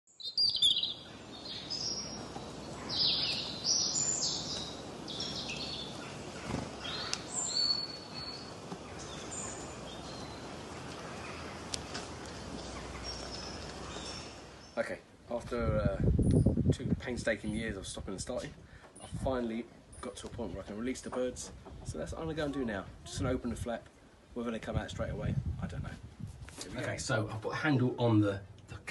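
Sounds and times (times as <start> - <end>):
small birds chirping: 0.1 - 15.0
steady background hiss: 0.2 - 28.9.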